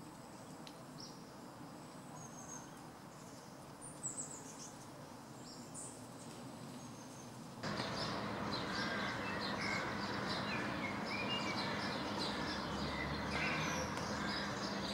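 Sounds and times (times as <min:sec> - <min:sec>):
songbirds chirping: 0:00.1 - 0:14.9
steady rushing noise: 0:07.6 - 0:14.9.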